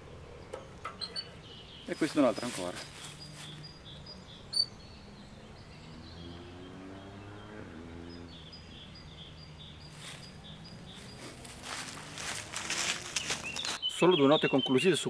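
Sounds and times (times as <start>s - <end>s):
bird singing high repeated notes: 0.4s - 12.3s, 13.2s - 15.0s
sharp high bird chirp: 0.9s - 5.1s.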